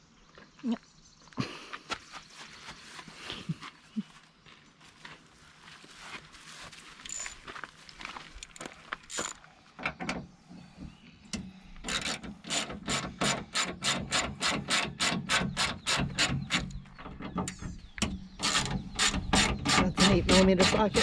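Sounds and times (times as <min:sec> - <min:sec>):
socket ratchet clicking: 0:11.4 - 0:20.9.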